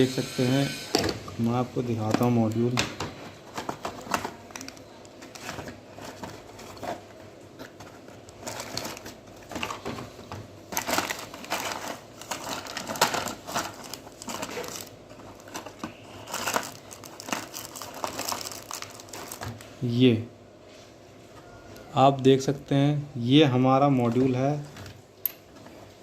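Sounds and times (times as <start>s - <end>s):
hands rummaging through small parts: 2.0s - 19.6s.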